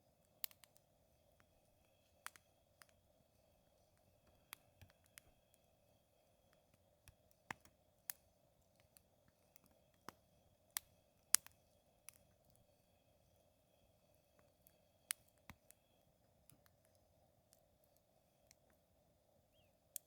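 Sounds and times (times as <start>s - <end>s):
wood fire crackling and popping: 0.2s - 5.8s, 6.5s - 12.7s, 14.4s - 18.8s.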